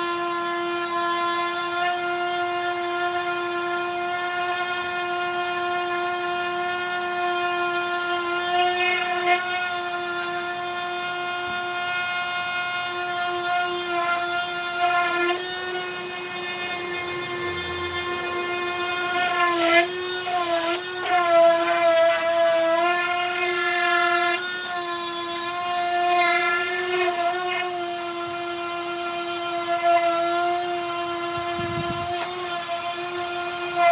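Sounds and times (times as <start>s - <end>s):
electric sander whining on wood: 0.0s - 33.9s.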